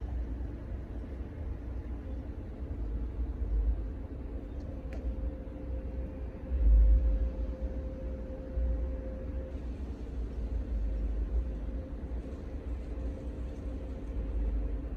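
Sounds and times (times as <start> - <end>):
faint steady hum: 0.0 - 14.9
low uneven rumble: 0.0 - 14.9
click: 4.6 - 5.1.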